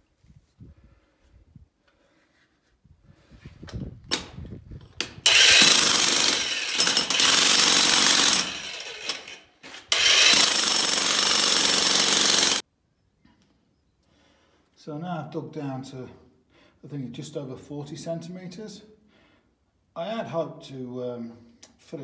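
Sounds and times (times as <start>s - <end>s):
jackhammer breaking ground: 5.2s - 12.6s.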